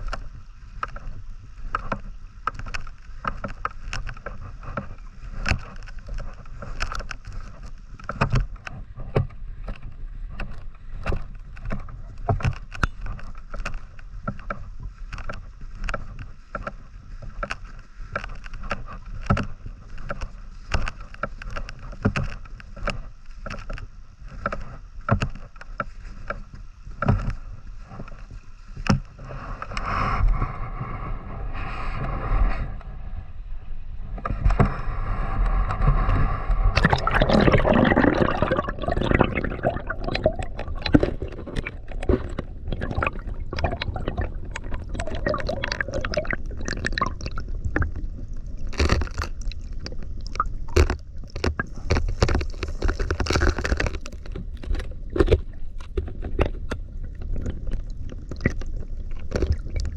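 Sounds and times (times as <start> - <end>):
river water sloshing and gurgling: 0.0 - 32.4, 34.1 - 59.9
water rushing: 36.8 - 55.8.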